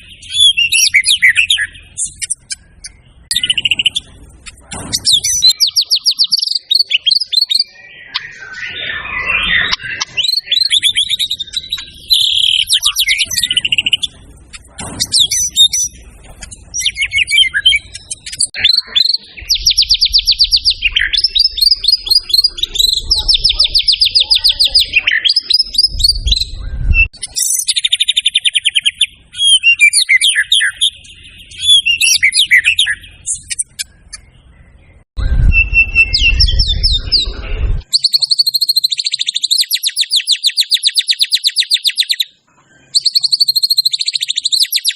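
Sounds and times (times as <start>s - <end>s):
songbird singing trills and whistles: 0.0s - 44.9s
low rumble: 19.3s - 25.0s, 25.6s - 27.1s, 34.0s - 37.8s.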